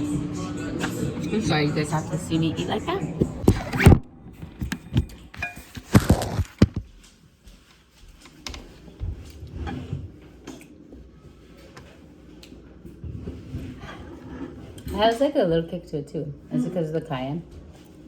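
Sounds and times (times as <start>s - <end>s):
person eating: 4.8s - 6.8s.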